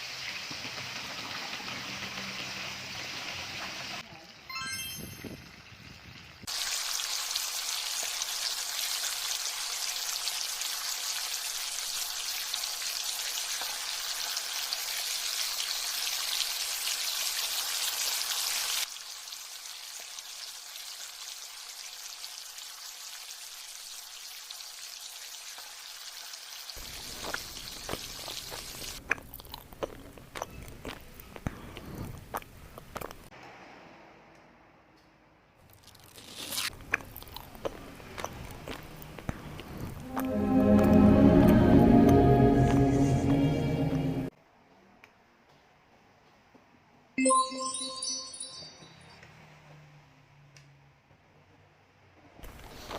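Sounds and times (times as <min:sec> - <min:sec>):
ribs sizzling on grill pan: 0:06.5 - 0:29.0.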